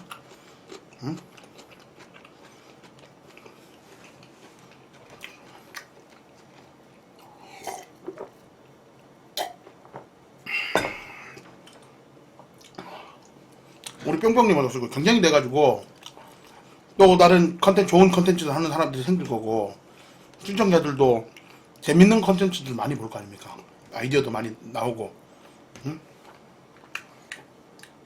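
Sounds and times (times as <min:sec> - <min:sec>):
person chewing: 0:00.0 - 0:08.4, 0:10.6 - 0:14.0, 0:15.9 - 0:16.7.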